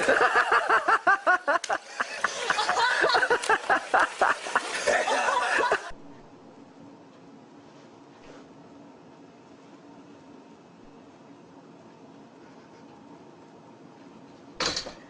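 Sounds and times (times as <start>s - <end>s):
person laughing hard: 0.0s - 5.9s.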